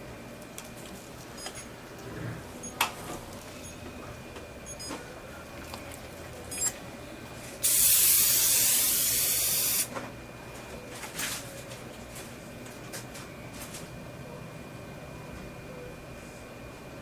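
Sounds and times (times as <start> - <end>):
air syringe hissing: 7.6 - 9.9.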